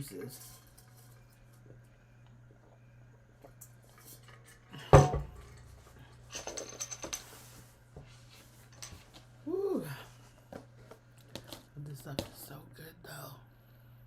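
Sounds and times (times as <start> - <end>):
tableware clinking and rattling: 6.3 - 7.4.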